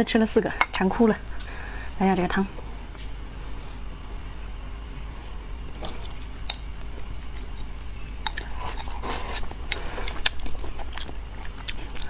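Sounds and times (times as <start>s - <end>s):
utensils clinking against a bowl: 7.3s - 12.0s.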